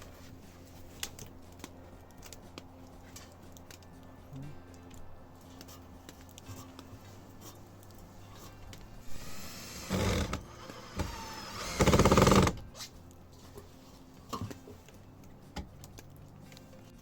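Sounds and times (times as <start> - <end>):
cordless drill driving screws: 9.0 - 12.6.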